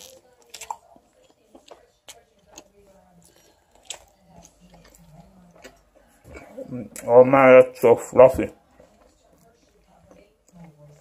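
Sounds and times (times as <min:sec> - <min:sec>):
person chewing: 0:00.0 - 0:07.2.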